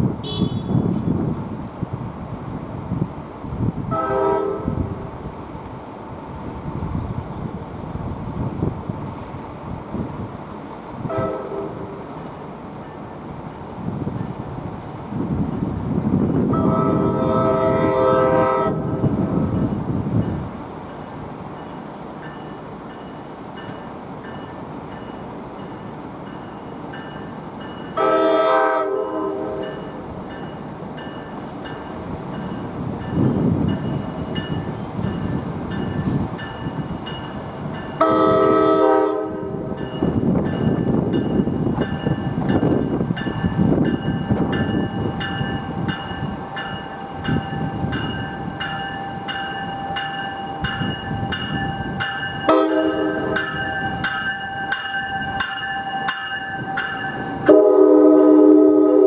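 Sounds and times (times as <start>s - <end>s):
train rumbling: 0.0s - 59.0s
train horn blasts: 0.2s - 1.0s, 3.9s - 5.1s, 11.0s - 12.1s, 16.5s - 19.5s, 28.0s - 29.9s, 38.0s - 39.8s, 52.4s - 54.0s, 56.6s - 59.0s
crossing bell ringing: 19.6s - 38.6s, 39.2s - 58.5s.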